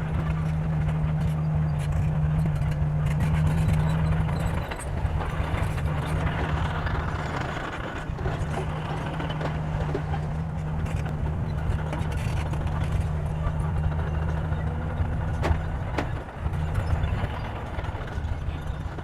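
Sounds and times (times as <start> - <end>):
diesel engine of heavy machinery: 0.0 - 19.0.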